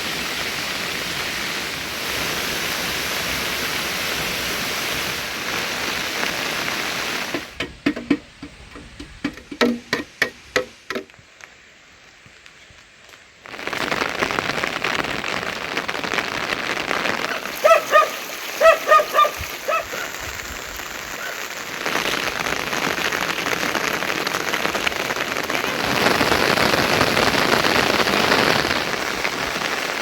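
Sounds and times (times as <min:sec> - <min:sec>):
heavy rain falling: 0:00.0 - 0:11.1, 0:13.3 - 0:30.0
sharp knocks: 0:07.3 - 0:11.1
short pitched calls: 0:17.2 - 0:20.3.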